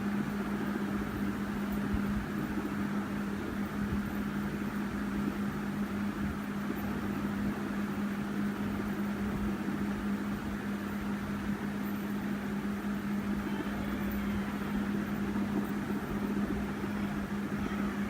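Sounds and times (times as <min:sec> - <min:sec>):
fidget spinner whirring on glass: 0:13.0 - 0:18.0.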